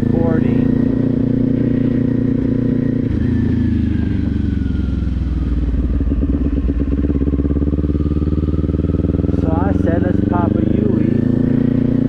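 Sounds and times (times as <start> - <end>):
motorbike engine at low revs: 0.0 - 12.0.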